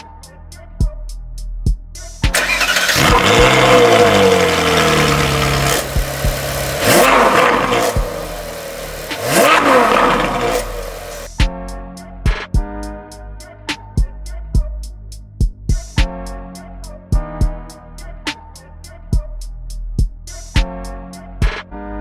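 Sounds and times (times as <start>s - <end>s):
car engine revving: 2.3s - 11.4s
car engine starting: 2.3s - 11.4s.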